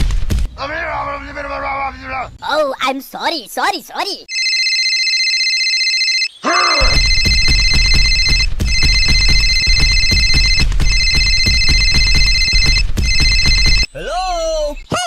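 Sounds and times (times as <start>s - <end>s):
electronic phone ringing: 4.3s - 13.9s
music with fast busy beat: 7.0s - 13.9s.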